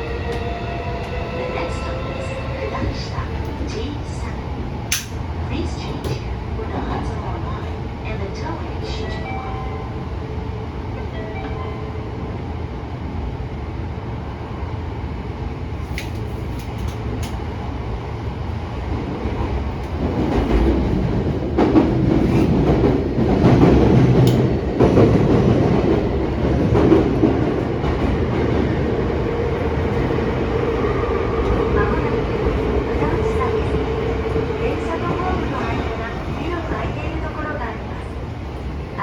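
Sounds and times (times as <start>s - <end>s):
train wheels rumbling on rail: 0.0s - 9.2s, 12.8s - 39.0s.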